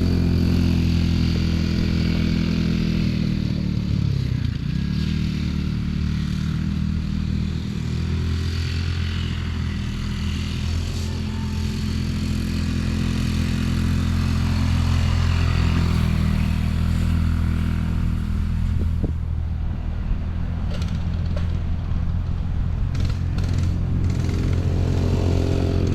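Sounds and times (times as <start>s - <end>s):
vehicle engine running: 0.0s - 25.9s.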